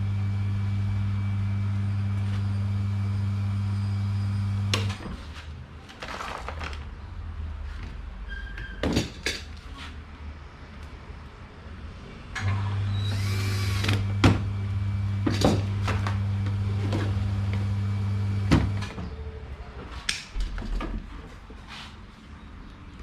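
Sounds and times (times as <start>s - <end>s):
electrical device humming: 0.0s - 5.0s, 12.5s - 19.0s.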